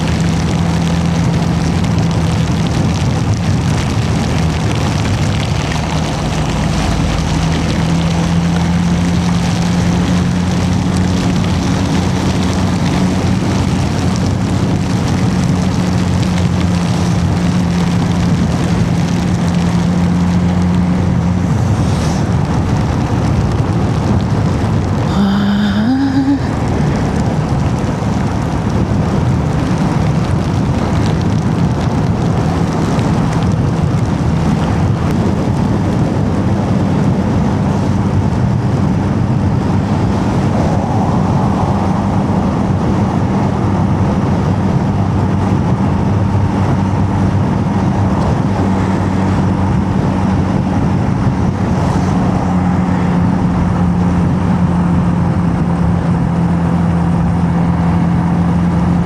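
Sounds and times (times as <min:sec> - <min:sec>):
wind rush: 0:00.0 - 0:59.0
tyre hiss on wet road: 0:21.6 - 0:22.4.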